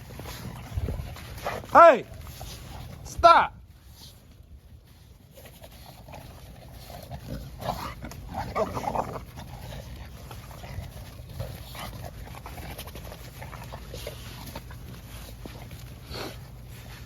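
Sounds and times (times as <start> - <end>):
dogs playing rough: 0.0 - 17.0
dog vocal sounds: 5.4 - 17.0.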